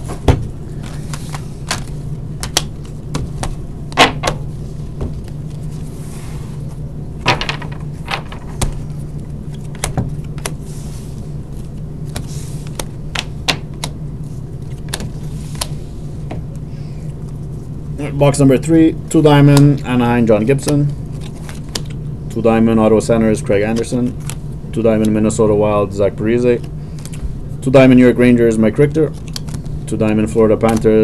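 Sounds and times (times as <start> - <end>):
steady low hum: 0.0 - 31.0
card packs clicking: 29.1 - 31.0.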